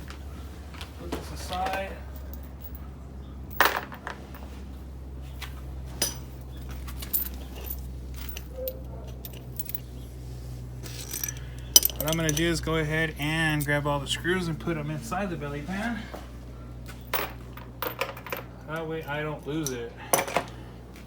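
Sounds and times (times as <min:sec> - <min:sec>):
low steady hum: 0:00.0 - 0:21.0
metallic clinks of screws and tools: 0:06.0 - 0:09.9, 0:10.8 - 0:12.7, 0:17.1 - 0:20.6.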